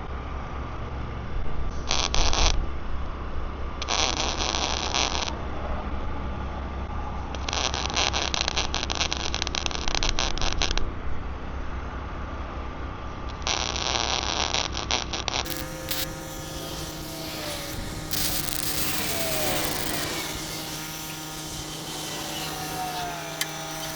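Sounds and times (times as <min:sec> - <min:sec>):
wire brush scrubbing steel: 0:15.5 - 0:23.9.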